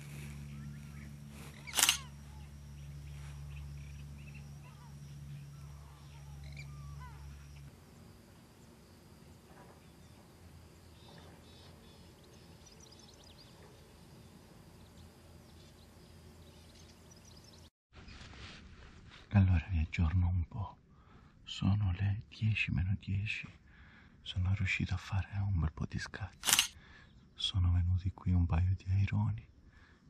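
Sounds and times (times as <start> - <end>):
bird calls: 0.0 - 7.7, 9.2 - 17.7
low steady rumble: 0.0 - 17.7.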